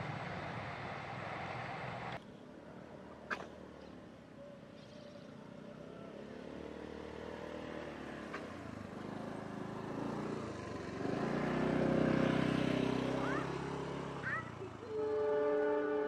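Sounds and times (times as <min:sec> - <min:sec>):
vehicle engine humming: 0:04.4 - 0:16.0.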